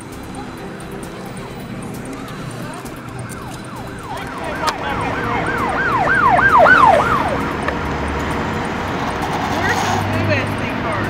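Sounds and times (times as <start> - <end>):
siren yelping: 0.4 - 8.1.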